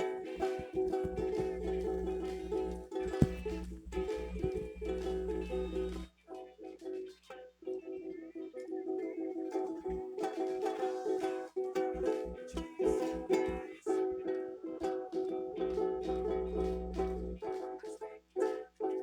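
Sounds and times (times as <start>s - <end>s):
low thumps: 0.0s - 6.1s
strummed acoustic string chords: 0.0s - 6.1s.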